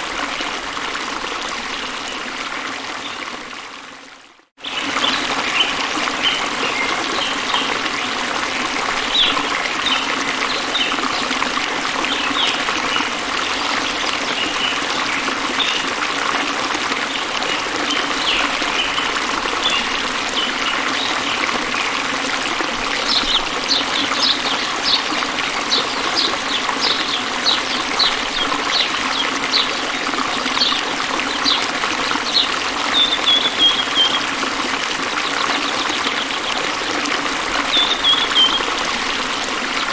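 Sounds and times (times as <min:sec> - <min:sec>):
water trickling in a stream: 0:00.0 - 0:39.9
small birds chirping: 0:22.9 - 0:34.4, 0:37.6 - 0:39.1.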